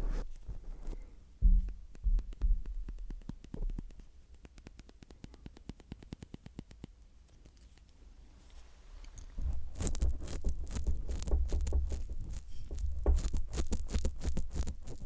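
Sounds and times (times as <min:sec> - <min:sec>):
low thumps: 0:01.4 - 0:03.7, 0:09.4 - 0:15.0.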